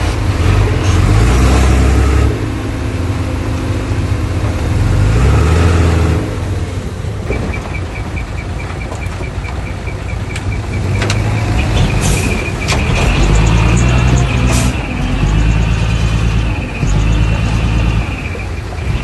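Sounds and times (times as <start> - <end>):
diesel engine droning: 0.0 - 19.0.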